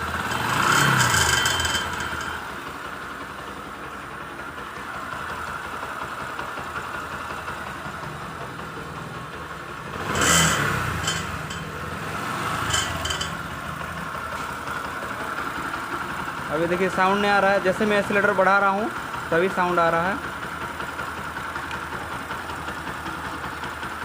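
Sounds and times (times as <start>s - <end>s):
rattle from exhaust silencer: 0.0s - 6.4s, 7.4s - 17.1s
motorcycle engine idling and revving: 0.0s - 24.0s.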